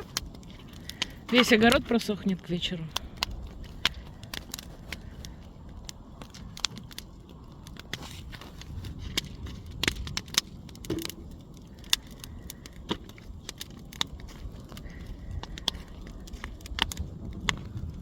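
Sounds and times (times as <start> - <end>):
bonfire crackling and popping: 0.0 - 18.0.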